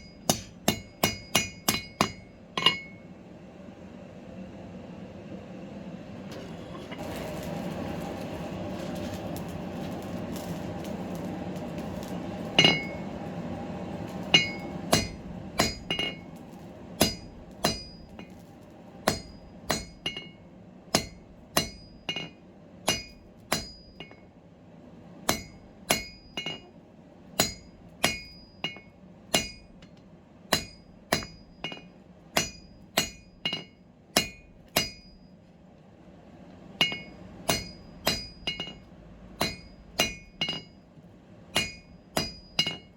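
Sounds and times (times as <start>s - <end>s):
hammer striking steel on anvil: 0.0s - 3.1s, 12.0s - 13.1s, 14.1s - 16.3s, 17.0s - 24.3s, 25.3s - 26.8s, 27.4s - 35.4s, 36.8s - 40.8s, 41.5s - 42.9s.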